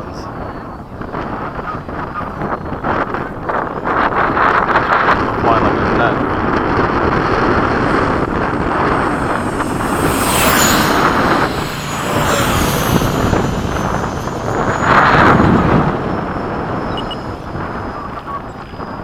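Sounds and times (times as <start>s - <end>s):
wind on microphone: 0.0s - 19.0s
model jet fan whine: 2.8s - 19.0s.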